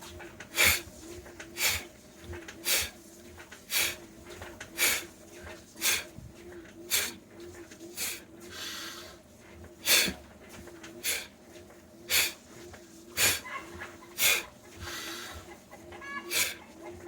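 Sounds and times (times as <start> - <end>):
person puffing breath: 0.5 - 0.8, 9.8 - 10.2, 13.2 - 13.4, 14.2 - 15.4, 16.3 - 16.6.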